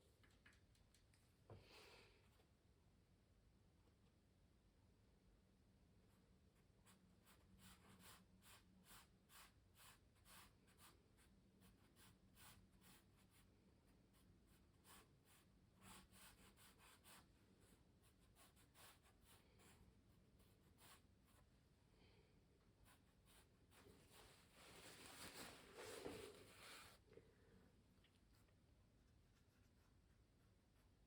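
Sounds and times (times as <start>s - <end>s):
scratchy strokes on canvas: 22.8s - 27.0s.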